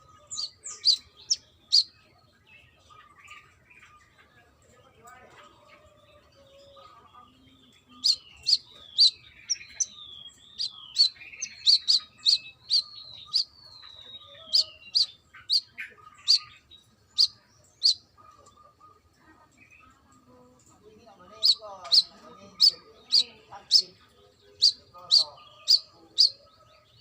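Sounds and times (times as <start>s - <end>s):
bird singing chips and whistles: 8.0s - 16.5s.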